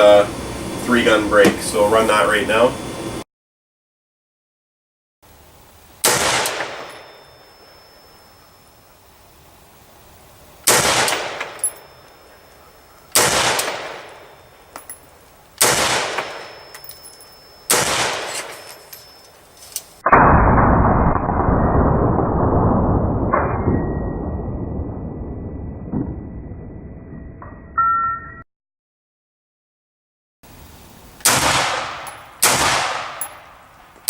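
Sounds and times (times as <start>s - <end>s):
muffled rushing noise: 0.0s - 3.2s
rifle shots: 6.0s - 7.3s, 10.6s - 12.0s, 13.1s - 14.5s, 15.6s - 16.8s, 17.7s - 18.8s, 31.2s - 33.6s.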